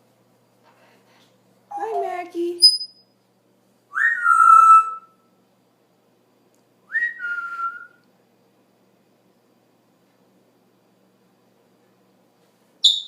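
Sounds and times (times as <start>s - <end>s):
parrot whistling: 3.9s - 5.2s.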